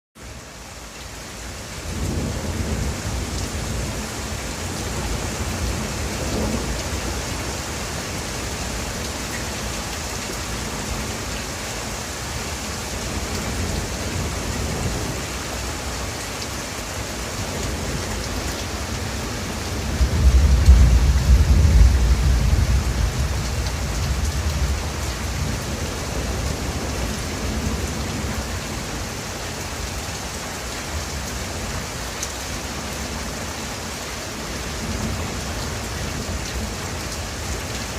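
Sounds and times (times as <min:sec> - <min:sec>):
steady rain falling: 0:00.2 - 0:37.9.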